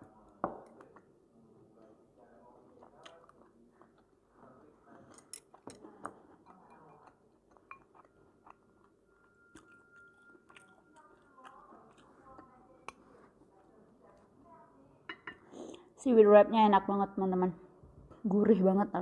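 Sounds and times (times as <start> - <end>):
chewing food: 1.8 - 14.4.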